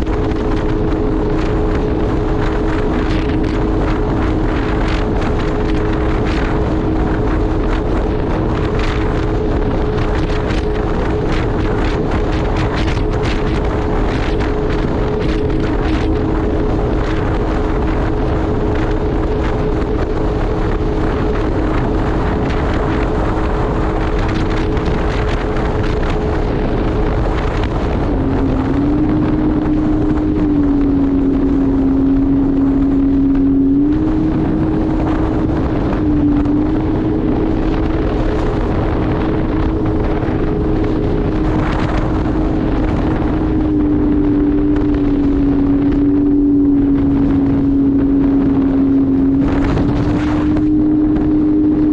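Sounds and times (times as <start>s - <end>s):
jet ski engine running: 0.0s - 51.9s
wind buffeting microphone: 0.0s - 51.9s.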